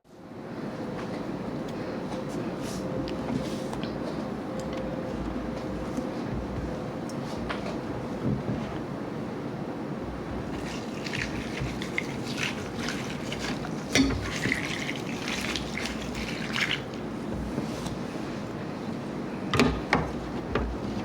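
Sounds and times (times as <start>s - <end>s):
slush ice crackling and crunching: 10.4s - 17.5s.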